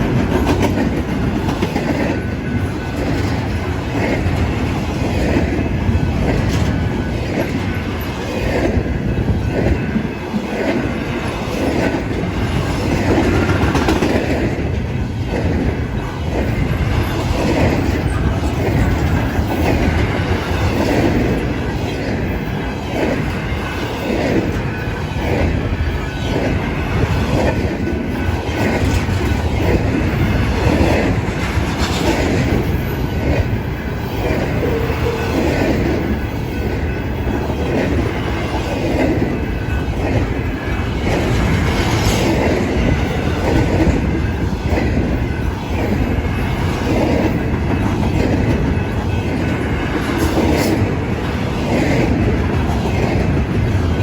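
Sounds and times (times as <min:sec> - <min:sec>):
train rolling noise: 0:00.0 - 0:54.0
train wheels clacking over rail joints: 0:00.0 - 0:54.0.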